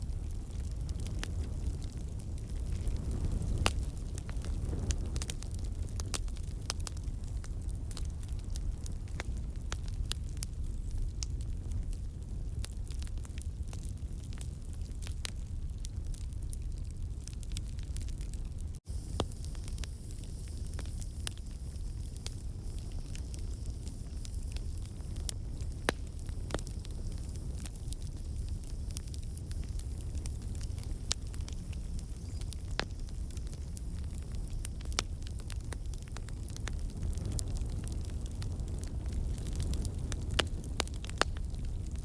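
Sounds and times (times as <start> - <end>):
burning logs crackling and popping: 0.0 - 42.0
campfire flames rumbling: 0.0 - 42.0.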